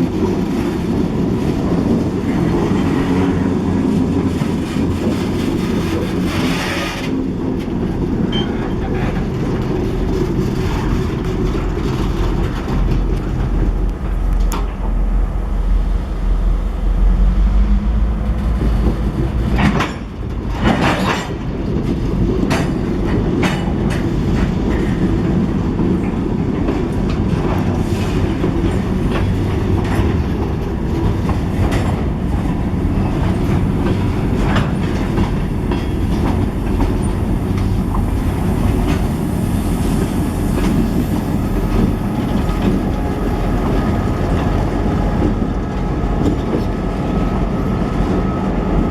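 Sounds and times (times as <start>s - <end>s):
train wheels rumbling on rail: 0.0s - 48.9s.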